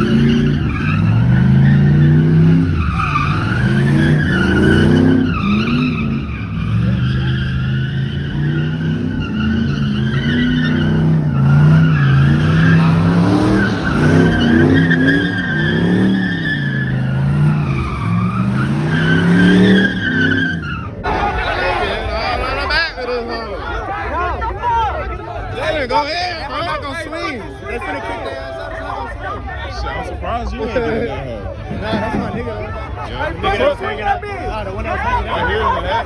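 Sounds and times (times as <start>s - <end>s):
car engine revving: 0.0s - 23.8s
tyres squealing: 0.0s - 36.0s.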